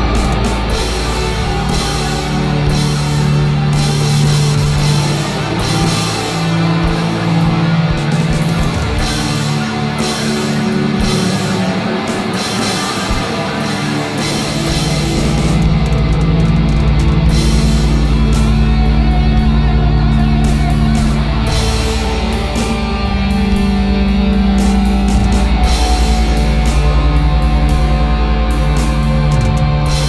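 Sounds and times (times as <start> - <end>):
deep heavy bass: 0.0 - 30.0
instrumental rock music: 0.0 - 30.0.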